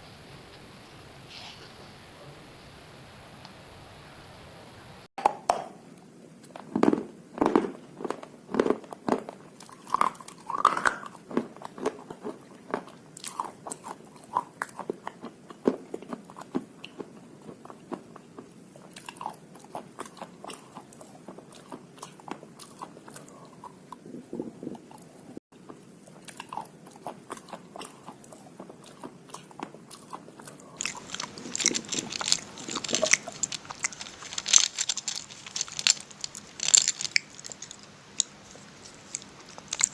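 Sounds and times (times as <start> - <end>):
brittle crunching while chewing: 6.5 - 17.1, 26.2 - 39.9.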